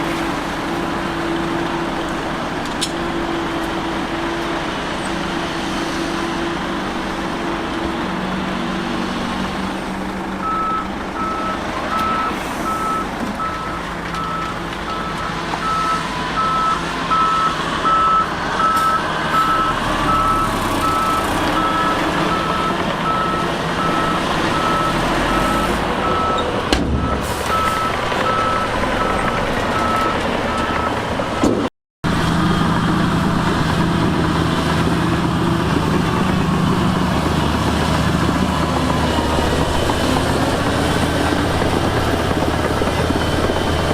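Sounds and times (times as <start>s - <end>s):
diesel engine running: 0.0s - 43.9s
reverse alarm beeping: 10.4s - 30.9s.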